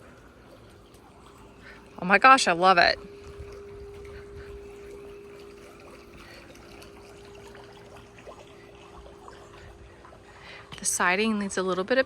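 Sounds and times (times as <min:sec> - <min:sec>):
steady hum: 0:00.0 - 0:12.0
water trickling and dripping: 0:00.0 - 0:12.0.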